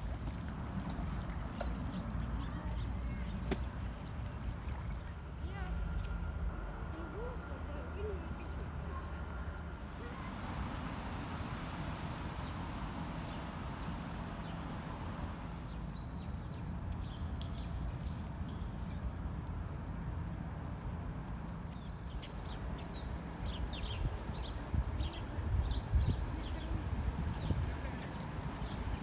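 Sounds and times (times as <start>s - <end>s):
steady low rumble: 2.1s - 19.6s
birds chirping: 7.2s - 19.0s.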